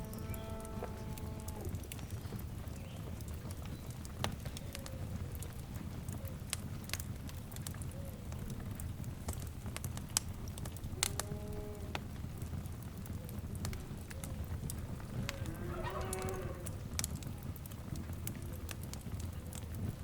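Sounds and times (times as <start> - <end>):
fireplace fire crackling: 0.0 - 20.0
faint animal call: 15.3 - 16.8.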